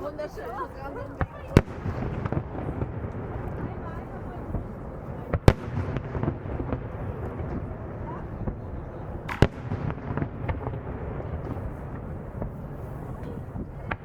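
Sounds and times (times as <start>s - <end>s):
low background noise: 0.0s - 14.0s
firework pops and crackles: 0.8s - 14.0s
firework shell bang: 9.2s - 12.6s.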